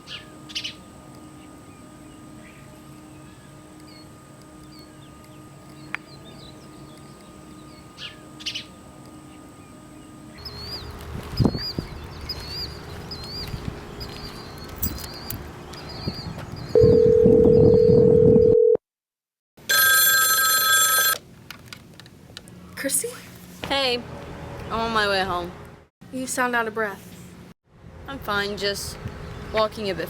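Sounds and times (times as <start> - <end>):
birds chirping: 0.0 - 17.8
phone ringing: 16.8 - 18.8, 19.6 - 21.2.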